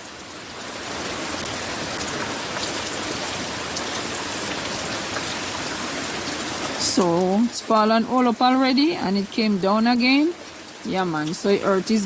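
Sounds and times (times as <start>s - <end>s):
rain hissing: 0.0s - 12.0s
raindrops ticking: 1.2s - 12.0s.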